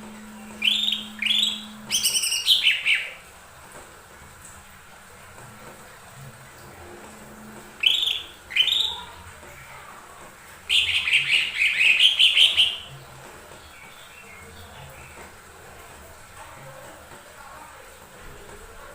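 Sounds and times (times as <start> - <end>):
bird chirping and warbling: 0.3 - 3.2, 7.8 - 9.2, 10.7 - 12.9.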